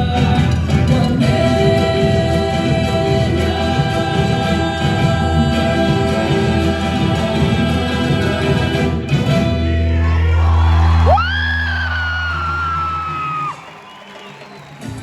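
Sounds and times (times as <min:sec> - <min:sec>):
folk dance band with steady beat: 0:00.0 - 0:09.5
voices singing together: 0:00.0 - 0:10.7.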